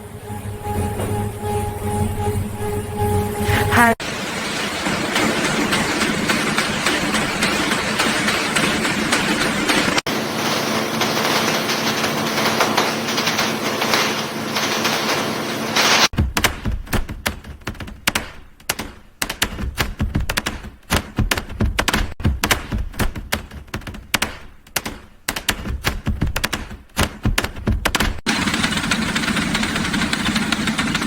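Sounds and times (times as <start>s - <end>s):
steady machine hum: 0.0s - 15.8s, 28.3s - 31.0s
clatter of sharp knocks: 4.6s - 31.0s.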